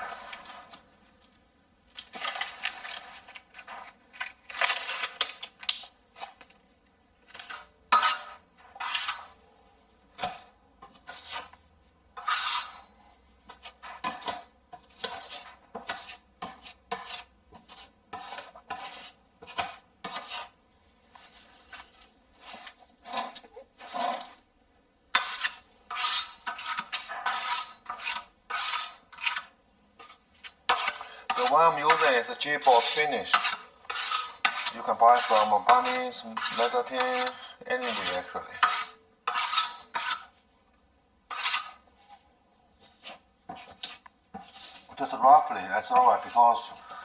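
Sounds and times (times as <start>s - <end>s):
metal tool scraping hard surface: 7.3s - 9.4s, 12.2s - 20.6s, 21.5s - 24.4s, 25.1s - 40.4s, 41.3s - 42.2s, 43.0s - 47.0s.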